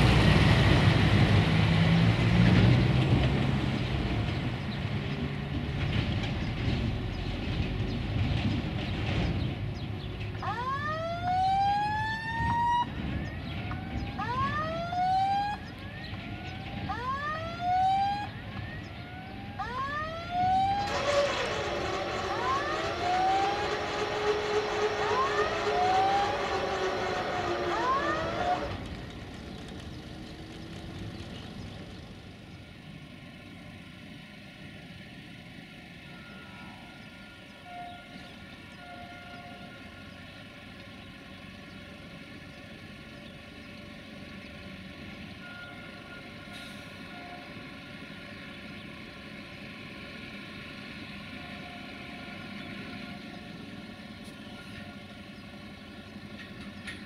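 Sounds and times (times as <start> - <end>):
distant diesel railcar rumble: 0.0 - 57.0
loud wailing tone: 19.6 - 28.8.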